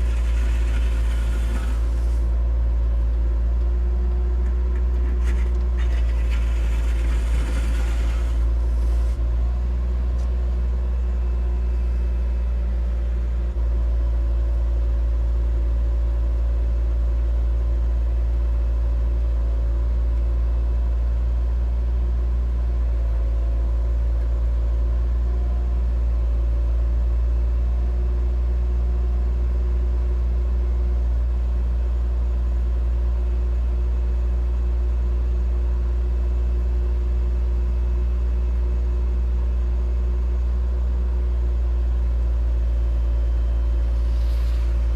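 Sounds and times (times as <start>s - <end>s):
scraping noise: 0.0s - 2.4s, 5.0s - 9.2s, 43.8s - 44.9s
excavator diesel engine running: 0.0s - 14.5s, 41.0s - 44.9s.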